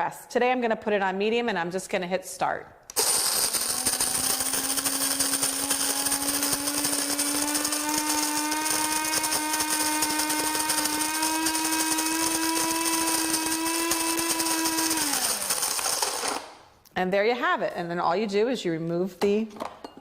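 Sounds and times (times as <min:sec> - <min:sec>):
coffee grinder motor hum: 0:02.9 - 0:16.5
coffee beans crunching: 0:02.9 - 0:16.6.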